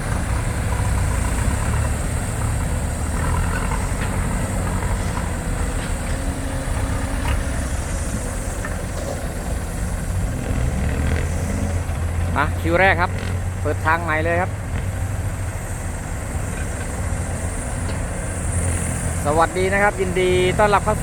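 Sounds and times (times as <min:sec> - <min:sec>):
faint engine knocks: 0:00.0 - 0:19.0
diesel engine rumbling: 0:00.0 - 0:21.0.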